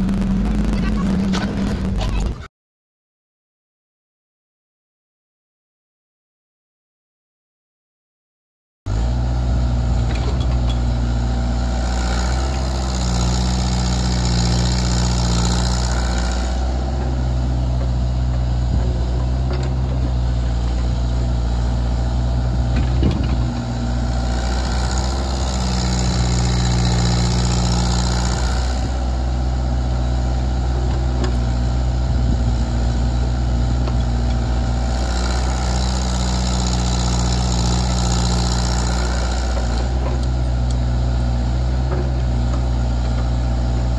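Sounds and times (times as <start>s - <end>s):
excavator diesel engine running: 0.0s - 2.5s, 8.9s - 43.9s.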